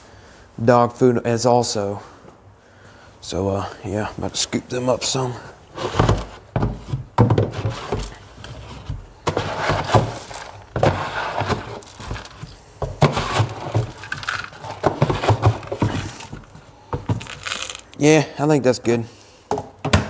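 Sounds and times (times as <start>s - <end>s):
pellets rattling and clattering: 7.4s - 18.1s
scoop digging into kibble: 9.3s - 18.0s.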